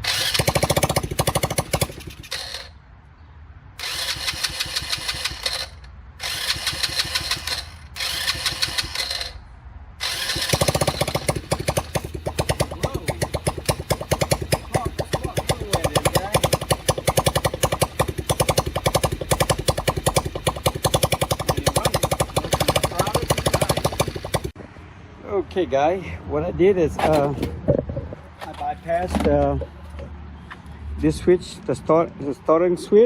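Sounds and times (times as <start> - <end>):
small engine cranking and running: 0.0 - 2.8, 3.8 - 9.4, 10.0 - 24.6.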